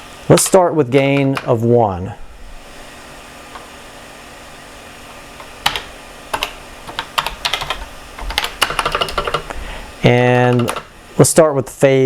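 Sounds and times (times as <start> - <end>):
keyboard key presses: 5.4 - 9.6, 10.4 - 10.9.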